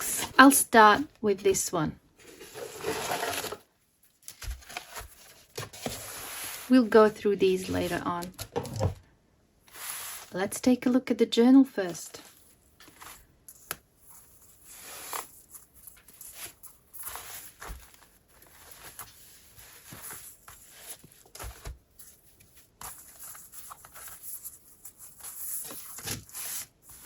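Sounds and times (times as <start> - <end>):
paper and packaging rustling: 2.2 - 9.0, 11.9 - 27.0.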